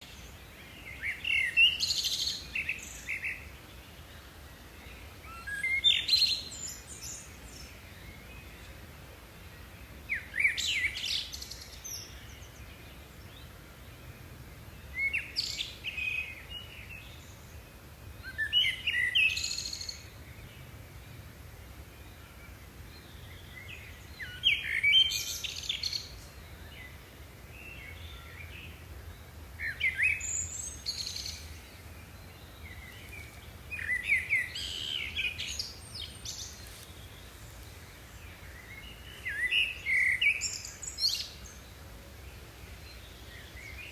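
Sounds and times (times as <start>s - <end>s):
bird chirping: 27.6s - 41.9s.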